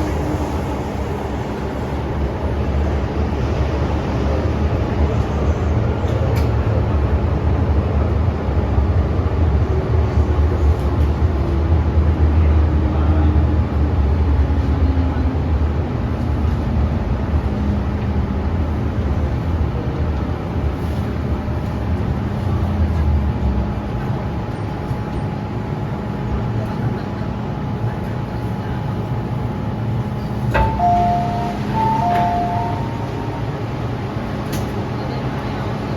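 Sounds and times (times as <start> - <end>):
train wheels rumbling: 29.0 - 35.9.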